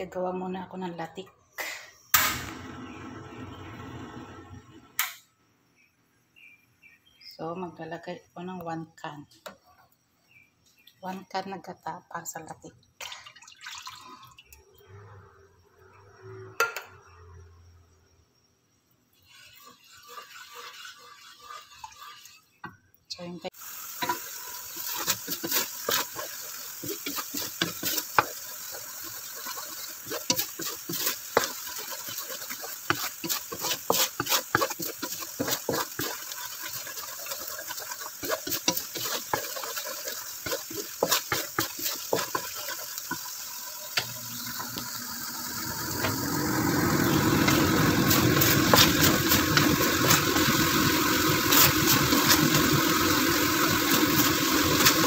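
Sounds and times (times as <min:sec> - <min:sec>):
coconut milk boiling: 0:13.0 - 0:15.1, 0:19.1 - 0:55.0
wooden spatula scraping: 0:19.2 - 0:22.6, 0:24.0 - 0:44.8, 0:46.9 - 0:55.0.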